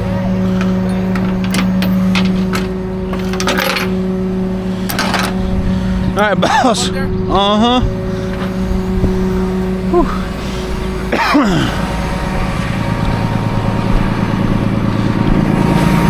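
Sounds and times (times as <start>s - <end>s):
truck engine humming: 0.0s - 16.0s.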